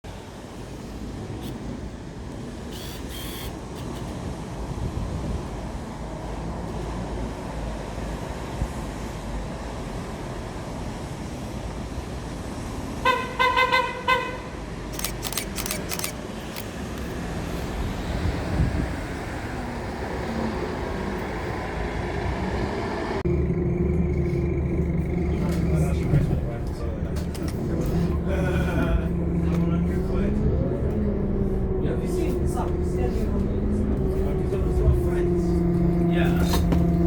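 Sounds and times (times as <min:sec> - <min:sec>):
bus engine rumble: 0:00.1 - 0:37.0
sharp clicks: 0:14.9 - 0:17.1.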